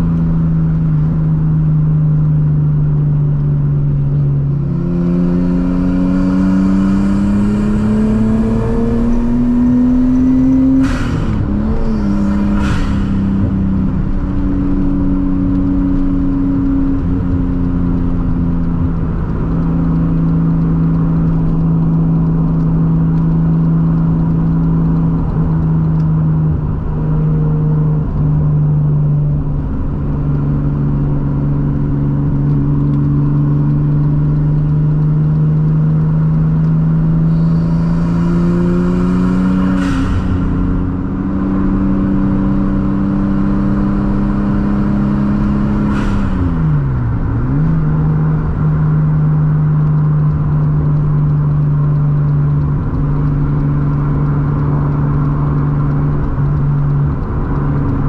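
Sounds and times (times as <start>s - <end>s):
car engine cruising: 0.0s - 58.0s.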